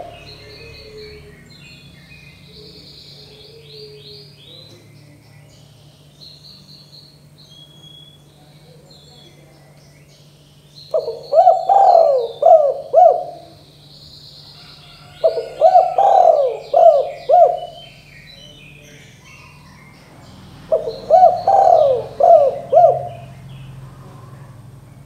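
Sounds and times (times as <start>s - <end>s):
dove cooing: 0.0s - 1.6s, 2.3s - 4.8s, 10.9s - 13.8s, 14.5s - 25.0s
small birds chirping: 0.0s - 25.0s.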